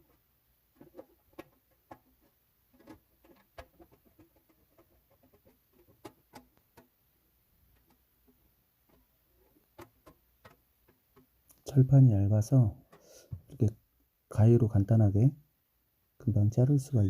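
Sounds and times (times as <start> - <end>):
faint clicks and light taps: 7.6 - 11.8.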